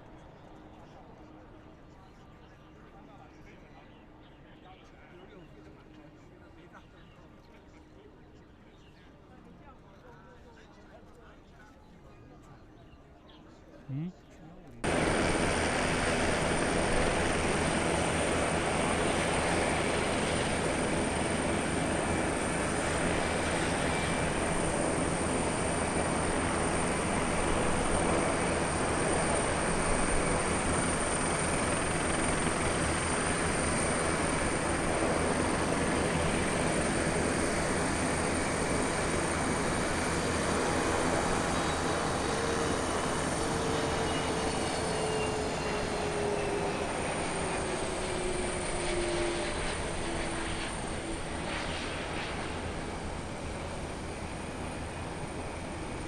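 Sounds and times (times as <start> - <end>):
jet engines running: 14.8 - 56.0.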